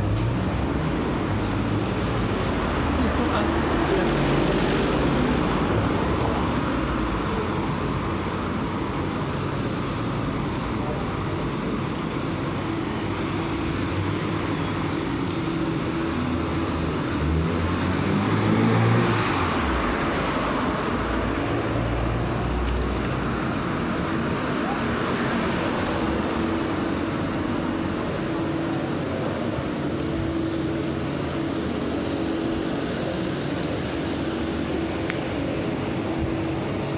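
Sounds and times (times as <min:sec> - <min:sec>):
road traffic noise: 0:00.0 - 0:36.9
vehicle passing: 0:16.0 - 0:32.4.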